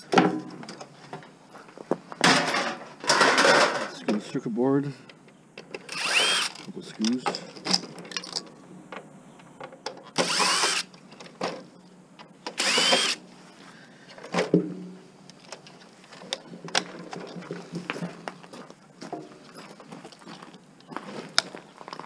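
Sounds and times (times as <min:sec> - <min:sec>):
power drill spinning: 0:05.9 - 0:06.6, 0:10.2 - 0:10.9, 0:12.5 - 0:13.2.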